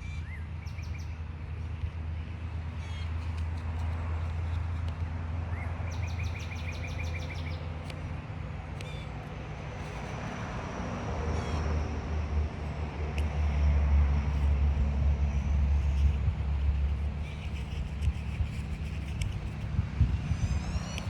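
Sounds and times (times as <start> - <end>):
steady low rumble: 0.0 - 21.0
sharp clicks: 17.3 - 19.7.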